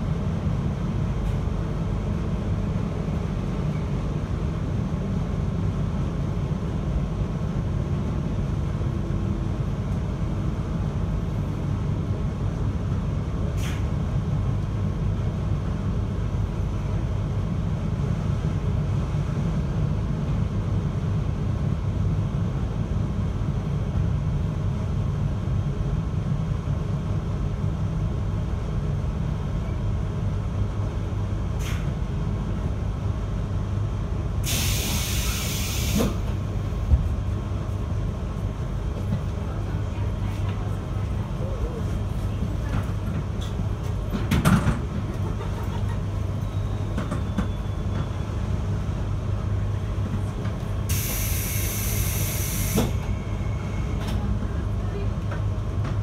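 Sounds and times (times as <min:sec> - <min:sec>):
train ride rumble: 0:00.0 - 0:56.0
air hiss: 0:34.4 - 0:36.2, 0:50.9 - 0:52.9.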